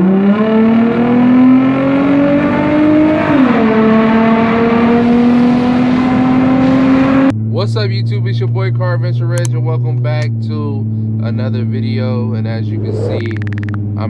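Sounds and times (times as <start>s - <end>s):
car engine revving hard: 0.0s - 7.3s.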